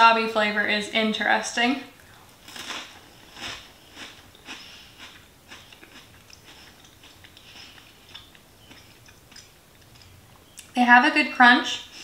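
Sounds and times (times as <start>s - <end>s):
crunchy snack being chewed: 2.1s - 10.2s.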